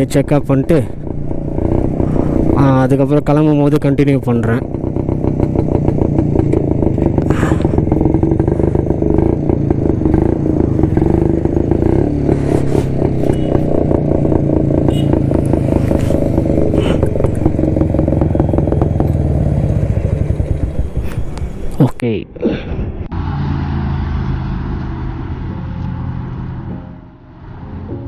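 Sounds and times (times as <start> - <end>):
two-stroke motorcycle engine idling: 0.1 - 12.3, 12.9 - 21.8.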